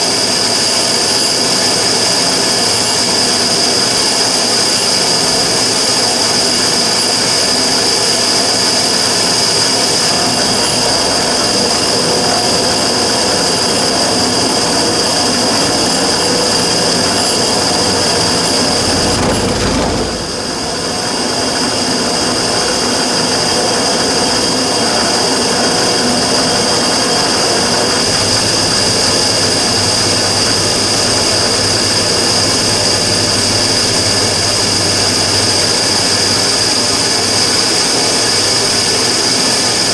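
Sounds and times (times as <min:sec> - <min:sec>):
burner roaring: 0:17.2 - 0:21.1
low rumble: 0:17.6 - 0:21.1.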